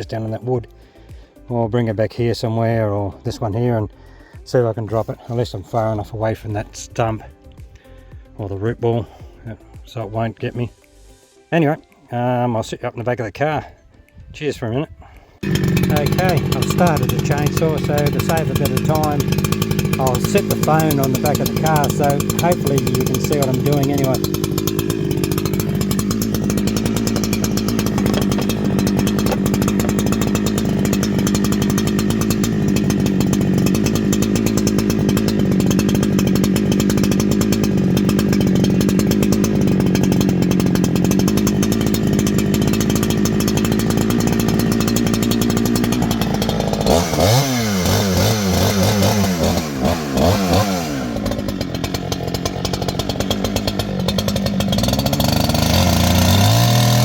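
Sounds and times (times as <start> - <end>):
chainsaw cutting a wet log: 15.4 - 57.0.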